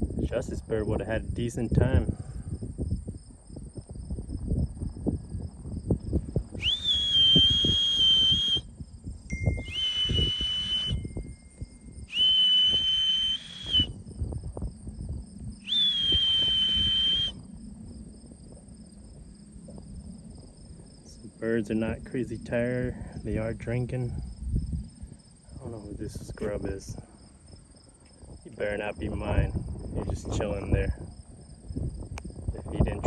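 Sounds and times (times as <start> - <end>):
crickets chirping: 0.0 - 33.0
whistle blasts: 6.5 - 8.7, 9.3 - 14.0, 15.6 - 17.4.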